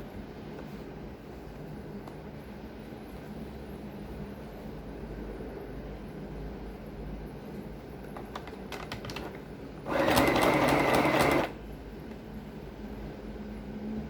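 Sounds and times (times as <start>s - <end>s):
sewing machine stitching: 9.8s - 11.6s.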